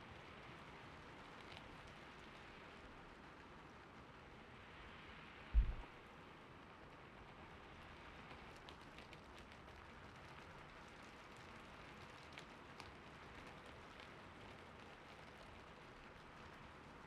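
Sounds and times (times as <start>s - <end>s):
faint gentle rain: 0.0s - 17.0s.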